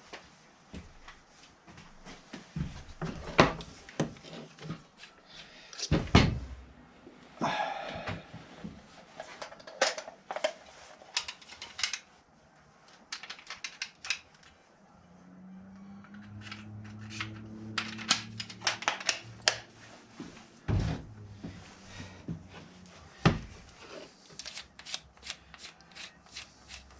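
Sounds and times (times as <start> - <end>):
small hard parts clicking: 13.1 - 14.5.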